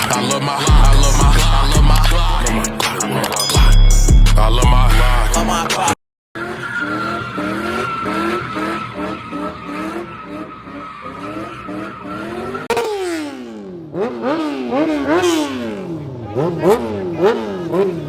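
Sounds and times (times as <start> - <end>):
car engine revving: 0.0 - 18.0
tire squealing: 6.4 - 18.0.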